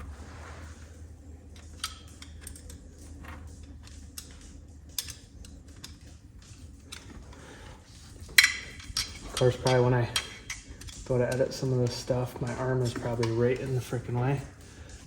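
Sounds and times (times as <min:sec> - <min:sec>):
low steady hum: 0:00.0 - 0:15.0
metallic clicks of hose clamp: 0:01.5 - 0:07.4, 0:08.2 - 0:13.8.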